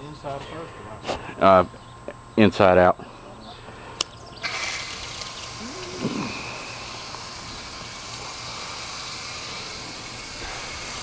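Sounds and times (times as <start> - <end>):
spray hissing: 4.4 - 11.0.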